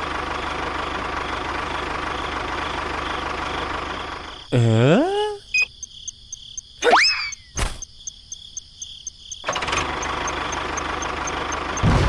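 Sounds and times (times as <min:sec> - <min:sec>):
tractor engine running: 0:00.0 - 0:04.6, 0:07.5 - 0:12.0
insect-like ticking: 0:05.5 - 0:11.9
cartoon rising whoop: 0:06.8 - 0:07.4.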